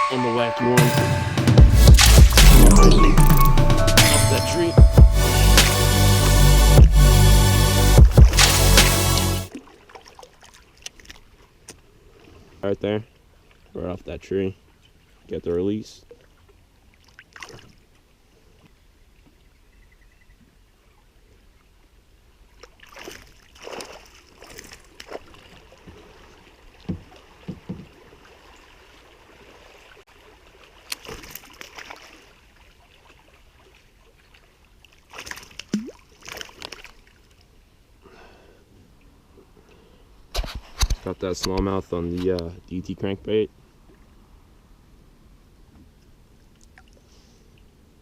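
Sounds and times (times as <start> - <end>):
water splashes: 8.2 - 13.8, 16.0 - 17.8, 22.5 - 37.5
water lapping: 9.5 - 13.8, 22.5 - 37.5
small knocks on kayak: 26.9 - 28.0.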